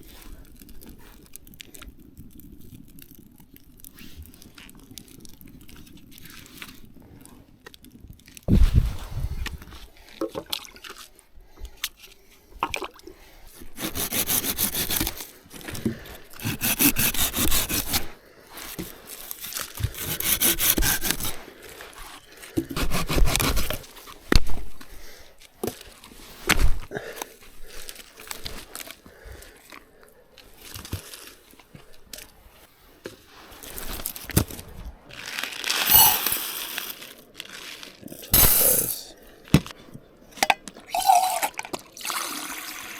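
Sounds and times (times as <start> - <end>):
knife scraping wood: 13.7 - 21.4, 22.0 - 24.2, 38.2 - 39.1.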